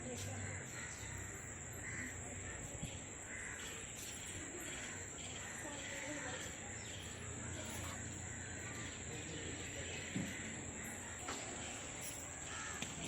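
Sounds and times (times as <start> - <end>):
crows cawing: 0.4 - 2.6, 3.2 - 4.0, 7.9 - 8.9, 9.6 - 11.4, 12.4 - 13.0.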